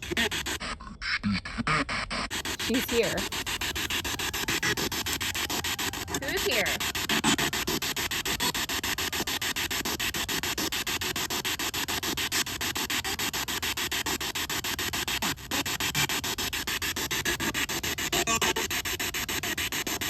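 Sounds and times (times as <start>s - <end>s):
pulsing radio static: 0.0s - 0.6s, 1.4s - 7.9s.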